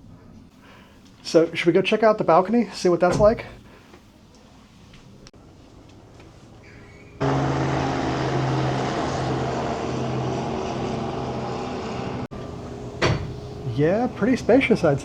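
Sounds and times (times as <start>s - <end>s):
mechanical drone with low hum: 7.2s - 15.0s.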